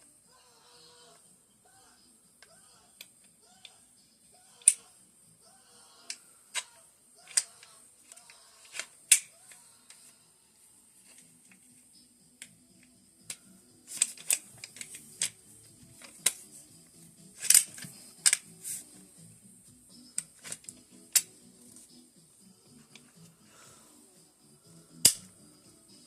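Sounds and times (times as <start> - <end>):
faint background music: 0.0 - 26.0
rifle parts and tools clicking: 7.3 - 9.6, 13.3 - 16.5, 17.4 - 18.6, 20.2 - 21.4, 25.0 - 25.2.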